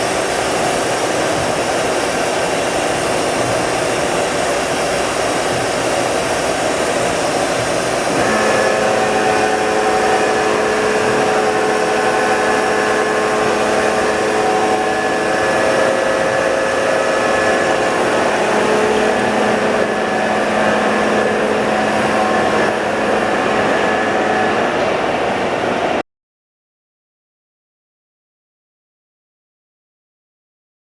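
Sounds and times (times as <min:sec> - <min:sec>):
machine whining tones: 0:00.0 - 0:26.0
machine whirring drone: 0:00.0 - 0:26.0.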